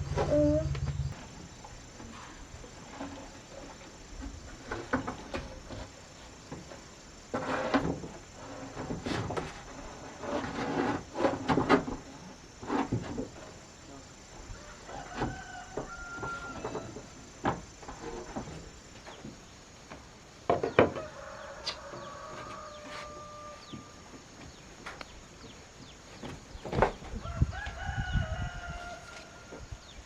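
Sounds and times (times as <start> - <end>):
rooster crowing: 14.5 - 17.0, 20.9 - 24.0, 27.2 - 29.8.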